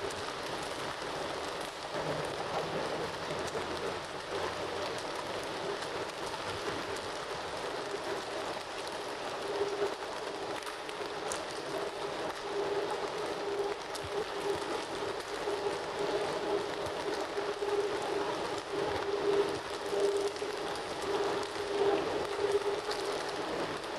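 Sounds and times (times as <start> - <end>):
campfire crackling: 0.0 - 23.9.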